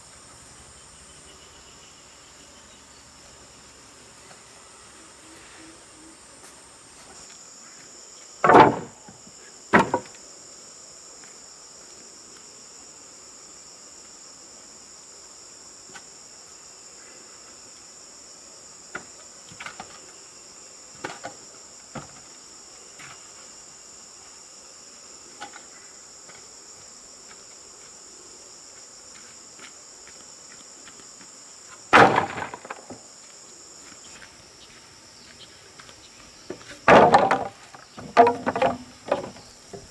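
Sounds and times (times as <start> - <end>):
insects chirring: 0.0 - 39.9
loud knocks: 8.4 - 9.1, 9.8 - 10.1, 31.9 - 33.0, 36.9 - 39.9.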